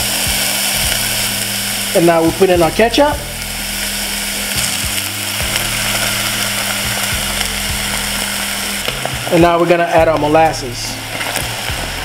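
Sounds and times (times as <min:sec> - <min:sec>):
low hum: 0:00.0 - 0:09.3
onion and garlic sizzling in oil: 0:00.0 - 0:12.0.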